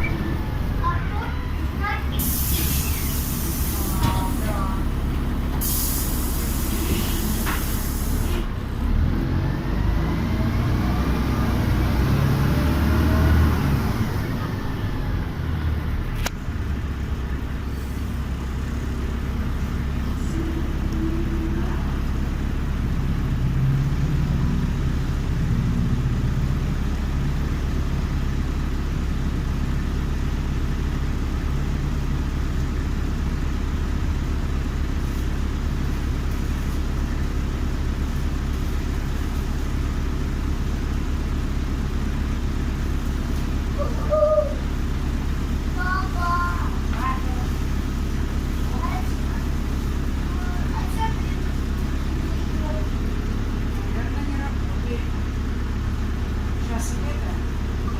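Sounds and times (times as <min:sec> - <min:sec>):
bus engine accelerating: 0:00.0 - 0:57.9
air brake hiss: 0:02.2 - 0:04.0, 0:05.6 - 0:08.4.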